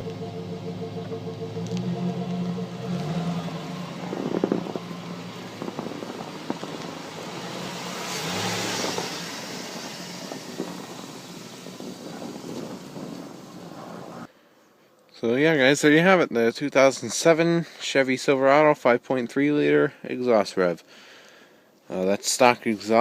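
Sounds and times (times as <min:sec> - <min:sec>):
truck engine idling and revving: 0:00.0 - 0:14.3.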